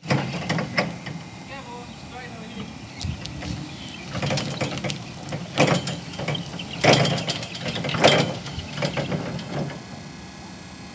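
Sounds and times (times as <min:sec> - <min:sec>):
loud rattling clatters: 0:00.0 - 0:01.2, 0:02.9 - 0:10.0
electric forklift humming: 0:00.0 - 0:10.9
mechanical clicks and clanks: 0:03.0 - 0:09.8.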